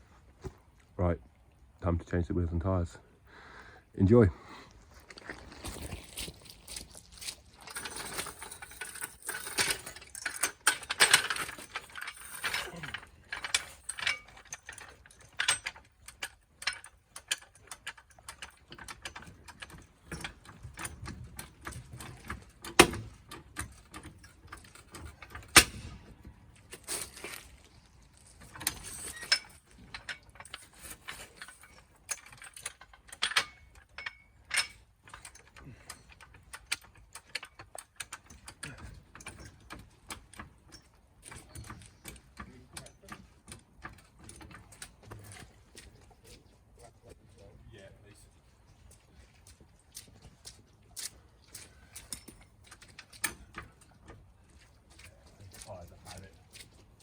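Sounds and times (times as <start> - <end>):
hand tools clicking and ratcheting: 7.2 - 26.0, 28.4 - 45.6, 51.0 - 54.2.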